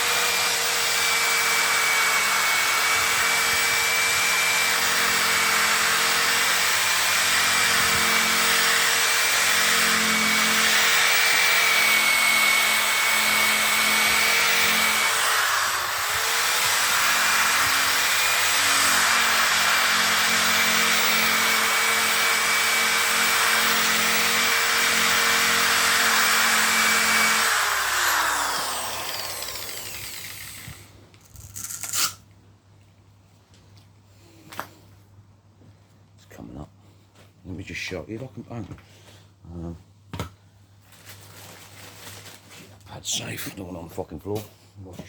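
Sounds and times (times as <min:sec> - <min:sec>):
power tool sanding plastic: 0:00.0 - 0:30.9.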